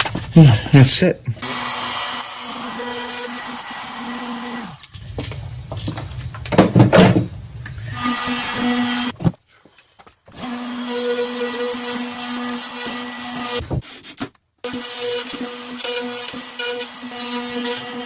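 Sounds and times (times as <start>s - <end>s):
power tool motor humming: 1.4s - 4.9s.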